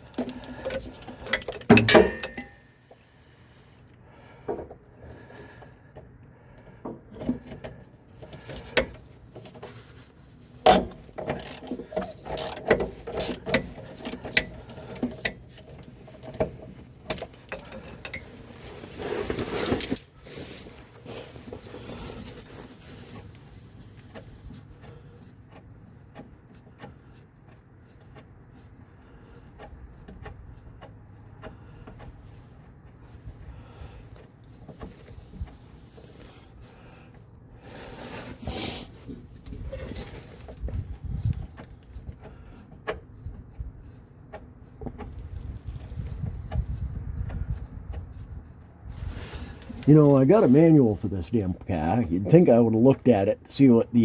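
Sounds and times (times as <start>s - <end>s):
metal tool knocks: 1.8s - 2.6s.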